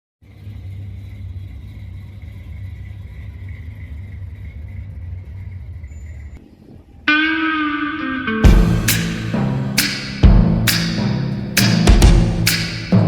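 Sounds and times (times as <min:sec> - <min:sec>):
car engine idling: 0:00.2 - 0:07.0.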